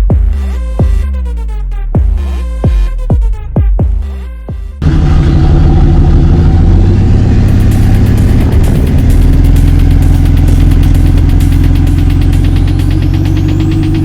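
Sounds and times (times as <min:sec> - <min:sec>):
electronic music bass sweeps: 0:00.0 - 0:14.0
synthetic engine rumble idling: 0:04.0 - 0:14.0.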